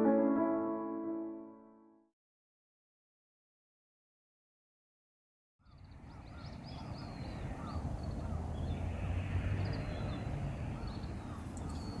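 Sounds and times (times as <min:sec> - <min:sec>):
birds calling: 0:05.6 - 0:12.0.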